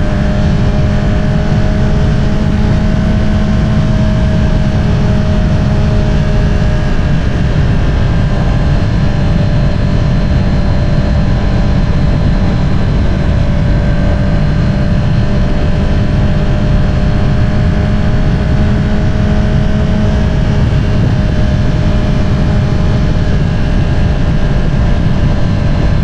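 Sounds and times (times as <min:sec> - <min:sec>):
motorcycle exhaust cruising: 0:00.0 - 0:26.0.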